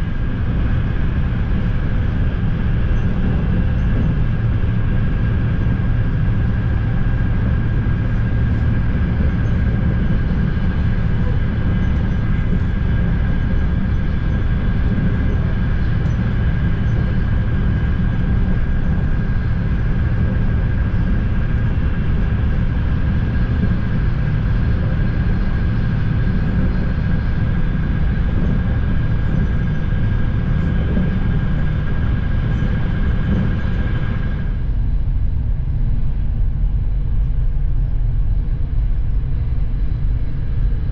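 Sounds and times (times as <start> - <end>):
high steady whine: 0.0 - 40.9
train rumble: 0.0 - 40.9.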